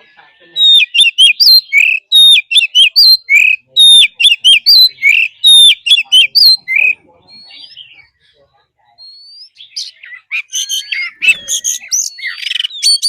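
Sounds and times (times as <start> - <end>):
bird singing whistled phrases: 0.5 - 8.0, 9.0 - 13.0.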